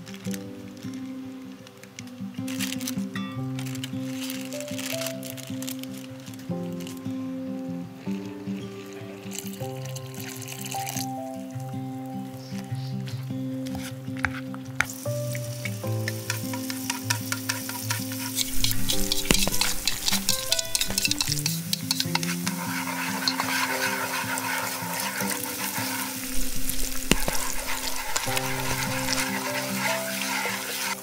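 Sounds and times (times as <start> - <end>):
food sizzling in a pan: 0.0 - 31.0
soft background music: 0.0 - 31.0
utensil clicks stirring: 8.1 - 11.2, 14.8 - 31.0.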